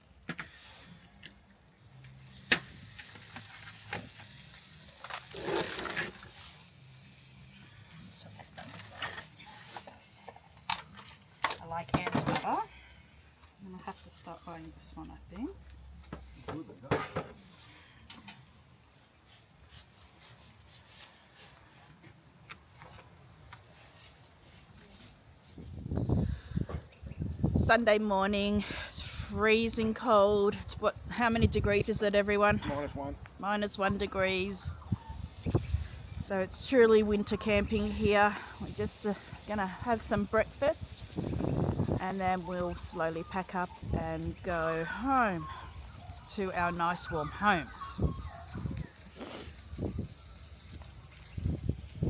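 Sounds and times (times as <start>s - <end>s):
crinkling crunching rustle: 2.8s - 6.8s.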